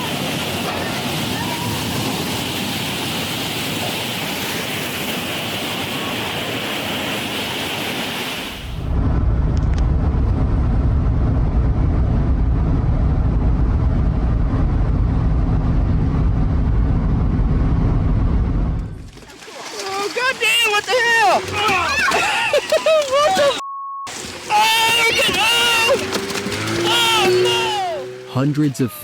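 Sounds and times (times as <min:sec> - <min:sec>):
surging water rushing: 0:00.0 - 0:08.8, 0:19.0 - 0:29.0
heavy low rumble: 0:08.8 - 0:19.2.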